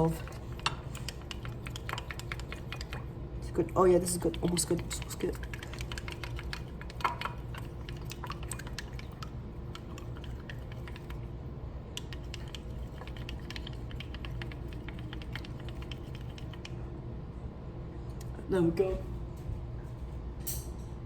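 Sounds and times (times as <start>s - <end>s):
hot oil crackling and spitting: 0.0s - 16.8s
steady low hum: 0.0s - 21.0s.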